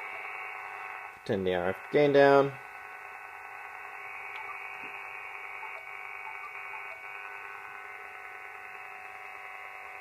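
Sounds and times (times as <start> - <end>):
steady radio hiss: 0.0 - 10.0
whining interference tones: 0.0 - 10.0.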